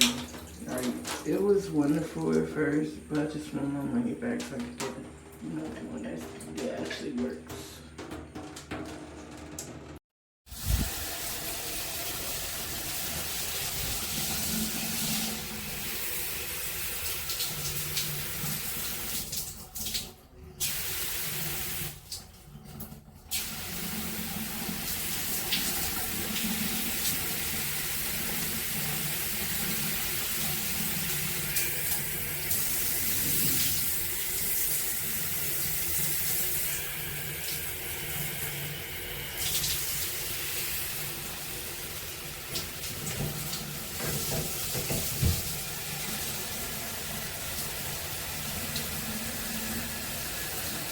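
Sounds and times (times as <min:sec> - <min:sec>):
shower head spraying water: 0:10.5 - 0:20.0, 0:23.3 - 0:50.9.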